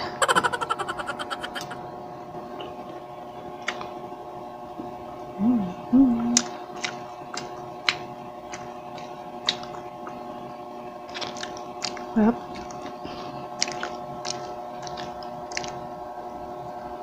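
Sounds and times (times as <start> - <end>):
person humming mm: 0.0 - 1.8
steady background hum: 0.0 - 2.0
wet mouth clicks chewing: 13.6 - 15.8.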